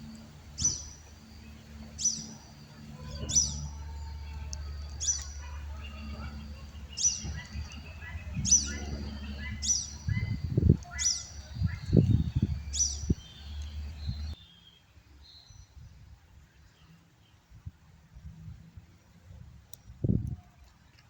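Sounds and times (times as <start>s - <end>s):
steady low rumble: 0.0s - 14.4s
bird chirping: 0.1s - 15.8s.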